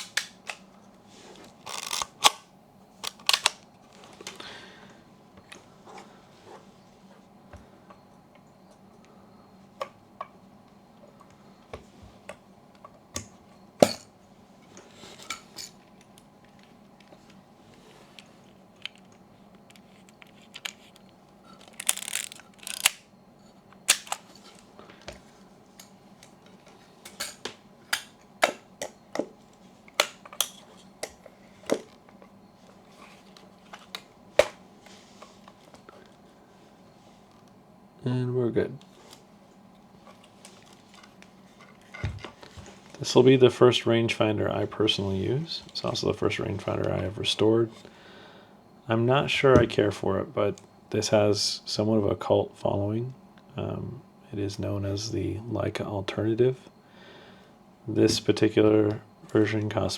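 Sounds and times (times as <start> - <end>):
camera film advance ratcheting: 1.7 - 2.2, 21.6 - 23.0
camera mechanical clicks: 21.6 - 23.0.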